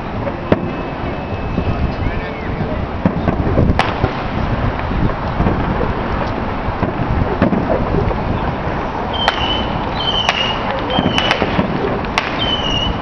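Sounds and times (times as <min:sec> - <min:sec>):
firework whistle: 0:00.0 - 0:04.1, 0:09.0 - 0:13.0
fireworks cracking: 0:00.0 - 0:13.0
steady background rumble: 0:00.0 - 0:13.0.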